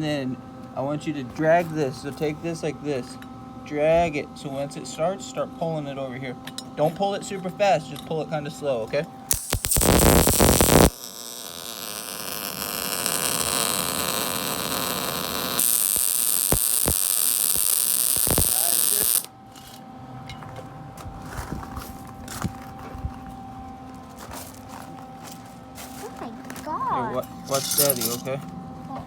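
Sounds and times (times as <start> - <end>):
steady hum: 0.0 - 29.0
welder arc sizzling: 9.3 - 19.3.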